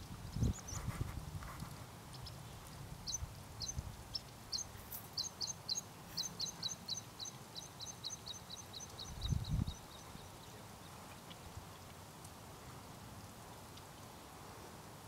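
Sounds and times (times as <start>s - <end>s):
songbird singing: 0.0s - 0.9s, 1.6s - 11.9s.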